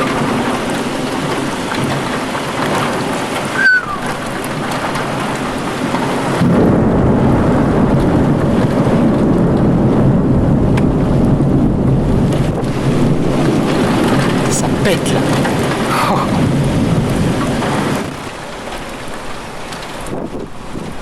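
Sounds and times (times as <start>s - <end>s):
heavy rain pouring: 0.0s - 21.0s
thunder rumbling: 0.0s - 21.0s
brief high squeak: 3.6s - 4.3s.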